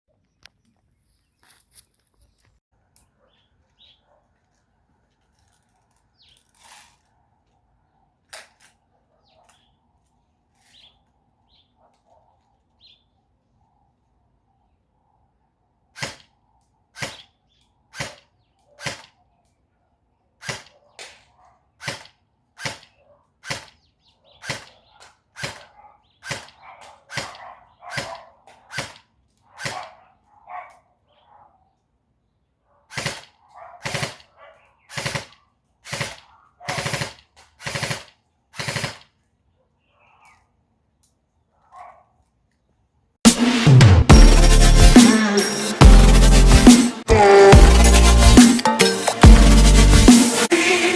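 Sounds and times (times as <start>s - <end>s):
airsoft gun shots: 16.0s - 16.3s, 17.0s - 17.3s, 17.9s - 19.2s, 20.4s - 21.2s, 21.8s - 30.0s, 32.9s - 34.3s, 34.9s - 39.1s.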